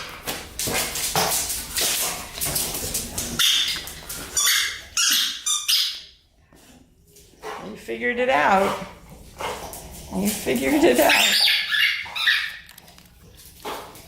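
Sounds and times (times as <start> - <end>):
squeaky toy squeaks: 4.4 - 6.1, 11.0 - 12.7.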